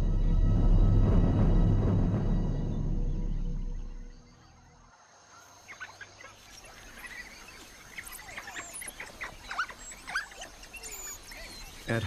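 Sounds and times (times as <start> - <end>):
background music: 0.0 - 4.4
faint bush ambience: 2.1 - 12.0
birds chirping and whistling: 2.6 - 12.0.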